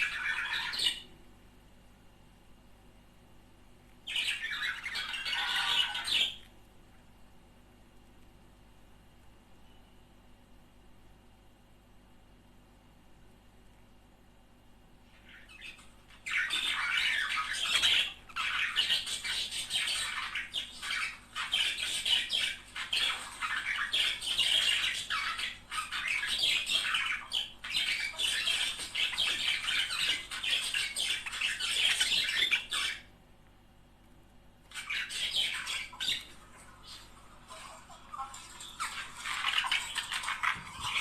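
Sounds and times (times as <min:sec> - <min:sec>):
budgerigars chattering: 0:04.1 - 0:06.5, 0:15.4 - 0:33.1, 0:34.7 - 0:41.0.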